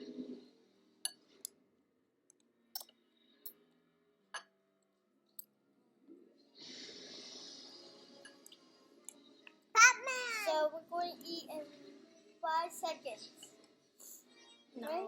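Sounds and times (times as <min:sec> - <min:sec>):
loud breathy noise: 0:06.6 - 0:08.2.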